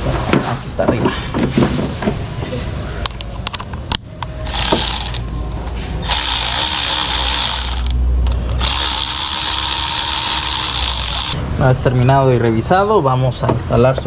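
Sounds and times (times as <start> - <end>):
power ratchet running: 4.4 - 5.2, 6.0 - 11.4.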